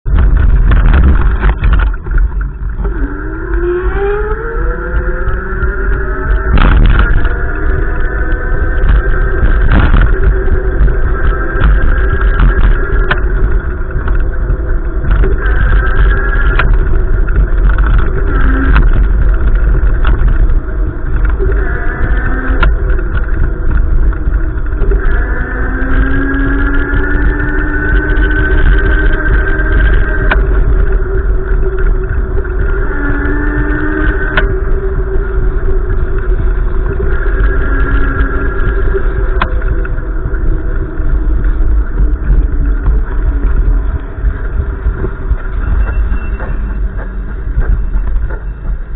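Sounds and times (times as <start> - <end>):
wind buffeting microphone: 0.0 - 48.9
pitched humming tones: 0.1 - 48.9.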